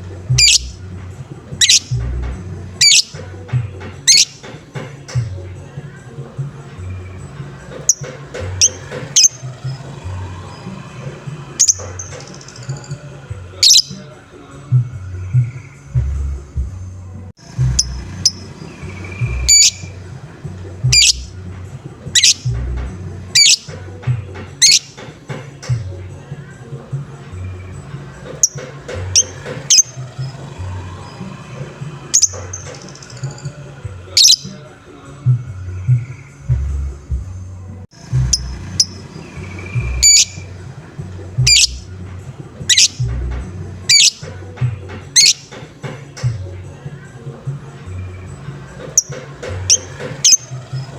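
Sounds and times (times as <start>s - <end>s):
lovebird harsh calls: 0.0s - 4.6s, 6.7s - 14.1s, 17.4s - 25.1s, 27.4s - 34.7s, 38.0s - 42.0s, 42.6s - 44.5s, 45.1s - 45.7s, 48.8s - 50.9s
background music beat: 0.0s - 50.9s.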